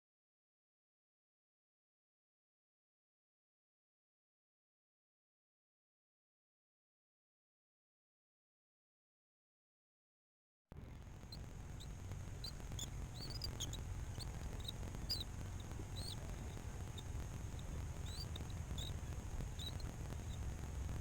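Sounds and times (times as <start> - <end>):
high bird chirps: 11.3 - 20.6.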